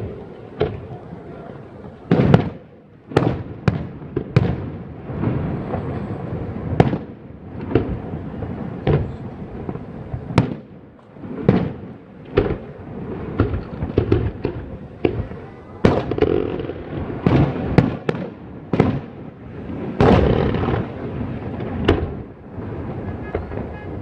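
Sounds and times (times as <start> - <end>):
fireworks bangs with echo: 0.0 - 24.0.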